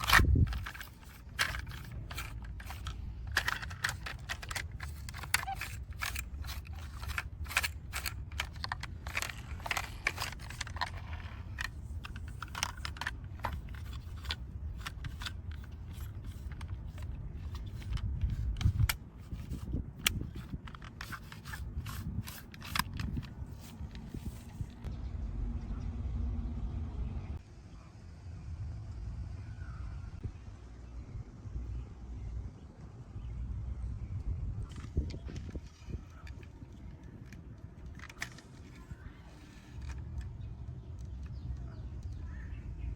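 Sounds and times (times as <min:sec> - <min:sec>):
sharp clicks of small hard parts: 0:00.0 - 0:24.8, 0:34.7 - 0:42.2
light scraping: 0:00.0 - 0:24.9, 0:34.7 - 0:40.3
steady low rumble: 0:00.0 - 0:42.9.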